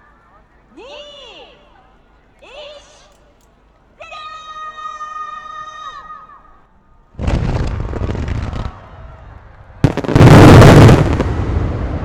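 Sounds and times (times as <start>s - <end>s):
firework crack: 7.2s - 12.0s
heavy firework boom rumbling: 7.2s - 12.0s.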